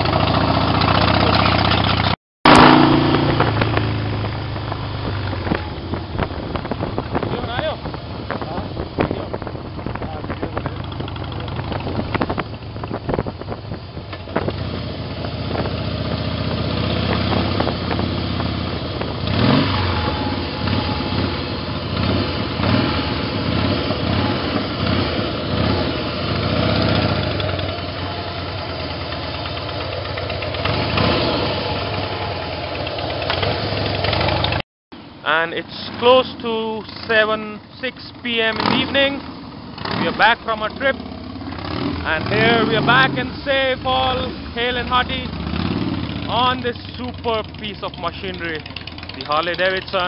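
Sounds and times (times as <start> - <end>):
motorcycle engine running: 0.0 - 50.0
wind rushing over microphone: 2.8 - 20.3.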